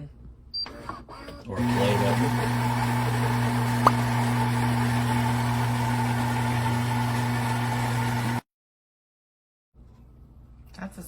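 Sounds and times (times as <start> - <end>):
espresso machine buzzing hum: 1.6 - 8.4.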